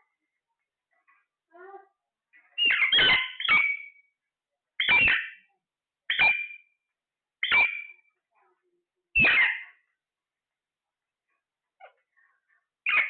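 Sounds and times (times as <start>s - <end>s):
parrot squawking: 2.6s - 4.0s, 4.8s - 5.4s, 7.4s - 8.0s, 9.2s - 9.8s.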